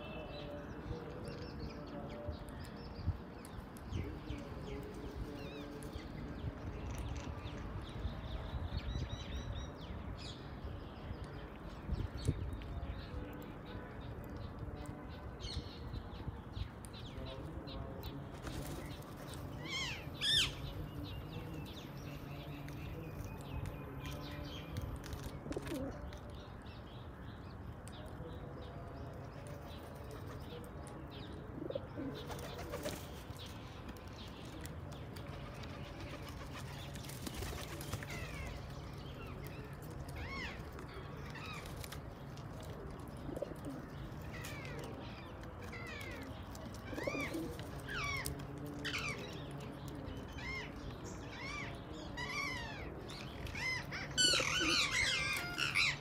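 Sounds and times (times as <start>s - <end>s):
birds calling: 15.4s - 56.0s.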